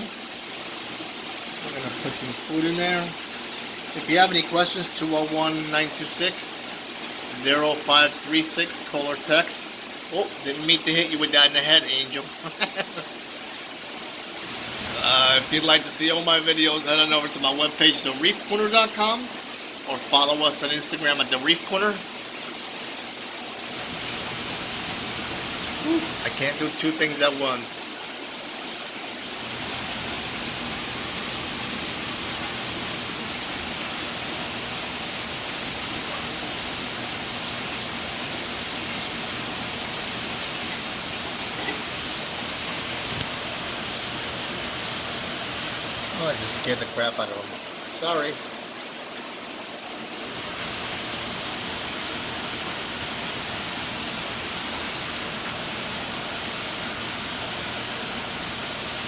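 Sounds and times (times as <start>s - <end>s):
aquarium water flowing: 0.0s - 59.0s.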